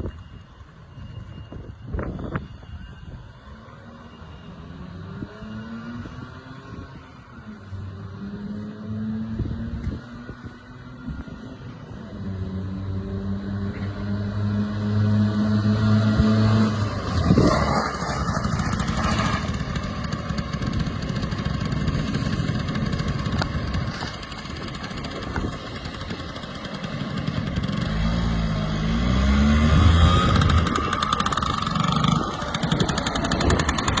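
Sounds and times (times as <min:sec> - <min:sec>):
small two-stroke engine running: 0:15.8 - 0:34.0.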